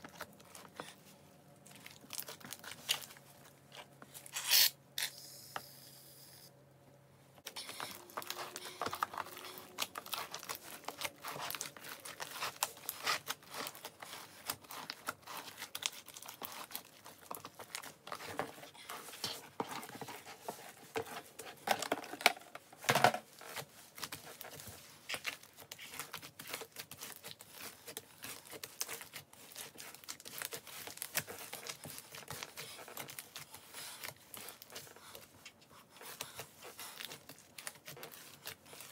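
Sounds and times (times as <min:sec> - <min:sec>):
loud slime squelch: 0:07.5 - 0:20.5, 0:23.5 - 0:38.9
slime crackling and popping: 0:07.7 - 0:18.0.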